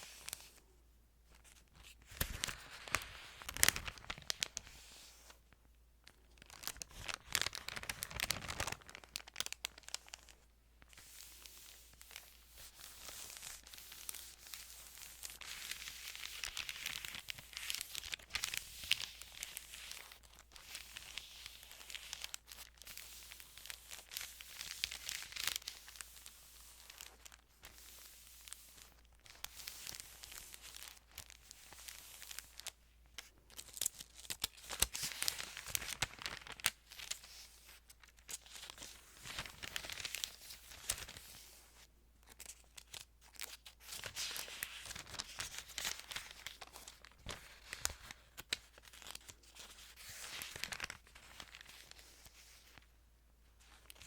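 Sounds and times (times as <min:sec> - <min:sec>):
thin pages rustling: 0:00.0 - 0:00.6, 0:01.3 - 0:05.4, 0:06.4 - 0:52.9.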